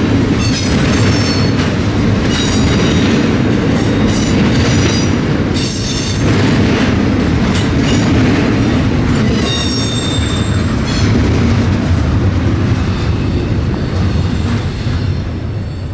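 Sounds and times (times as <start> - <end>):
freight train cars rumbling: 0.0 - 15.9
wheels squealing on rails: 0.1 - 6.4, 9.0 - 11.4, 12.8 - 15.9.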